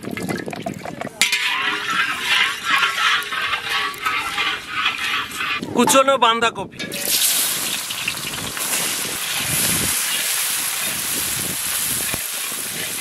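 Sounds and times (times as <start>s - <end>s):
cabbage sizzling in hot oil: 6.9s - 13.0s.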